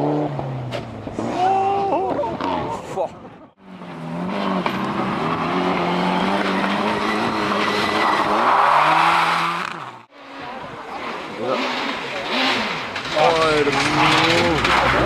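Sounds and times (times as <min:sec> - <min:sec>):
rally car engine at high revs: 0:03.6 - 0:15.0.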